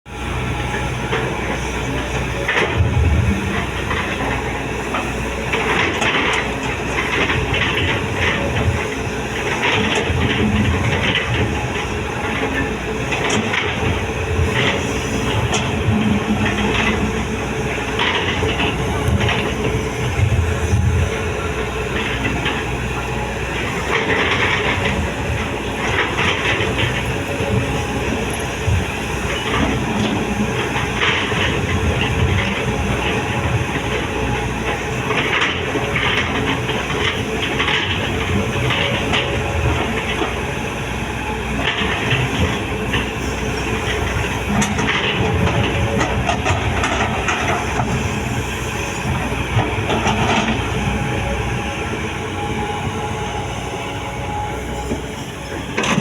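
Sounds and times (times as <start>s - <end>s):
heavy machinery running: 0.1s - 56.0s
rattling and clanking: 0.7s - 40.6s, 41.6s - 56.0s.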